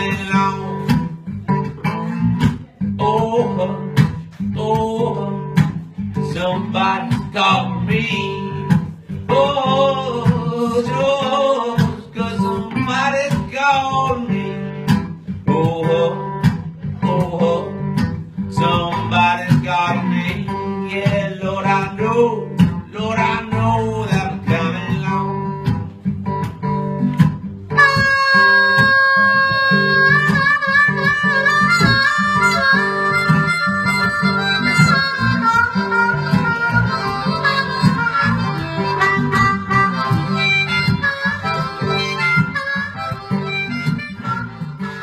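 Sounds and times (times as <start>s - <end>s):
acoustic guitar: 0.0s - 45.0s
bending melody line: 27.6s - 45.0s
harmonica chords: 27.6s - 45.0s.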